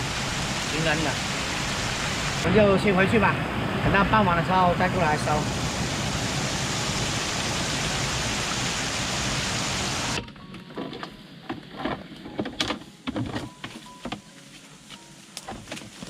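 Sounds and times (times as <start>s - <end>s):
waterfall rushing: 0.0s - 10.2s.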